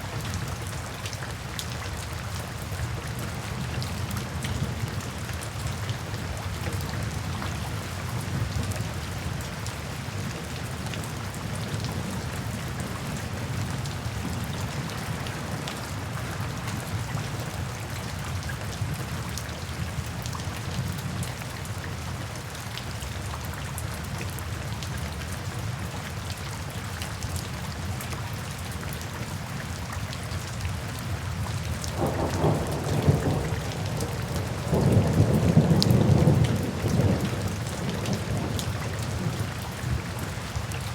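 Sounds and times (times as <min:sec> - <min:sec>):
steady rain: 0:00.0 - 0:40.9
thunder rumbling: 0:32.0 - 0:39.3.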